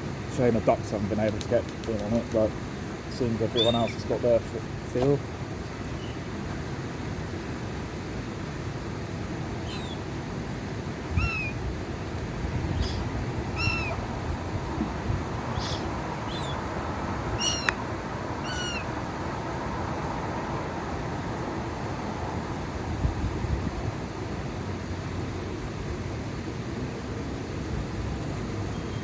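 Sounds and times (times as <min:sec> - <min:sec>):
gulls calling: 0:03.1 - 0:06.3, 0:09.5 - 0:10.1, 0:10.9 - 0:19.0.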